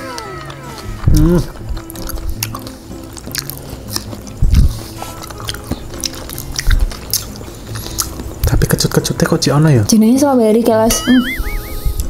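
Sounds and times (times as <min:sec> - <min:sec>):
chewing juicy strawberries: 0:00.0 - 0:09.1
quiet background music: 0:00.0 - 0:12.0.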